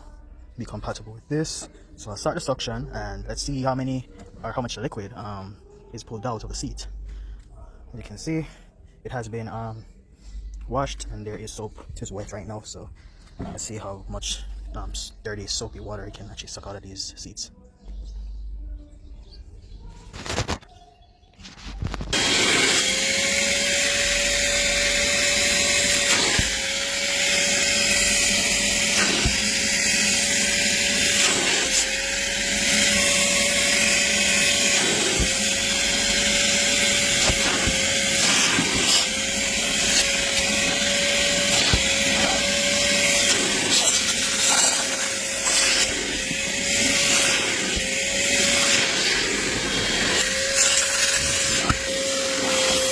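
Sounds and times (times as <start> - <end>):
shop vacuum running: 21.9 - 52.9
nozzle extracting water: 22.1 - 52.9.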